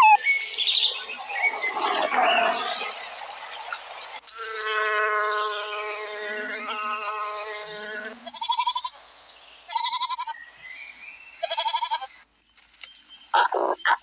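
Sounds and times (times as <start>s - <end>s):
goat bleating: 8.2s - 9.0s, 9.7s - 10.4s, 11.4s - 12.1s.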